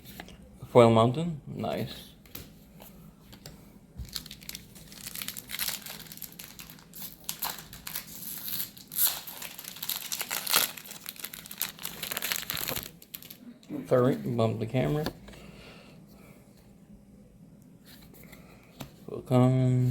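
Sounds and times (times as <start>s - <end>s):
foil wrapper tearing and crumpling: 4.0s - 13.4s.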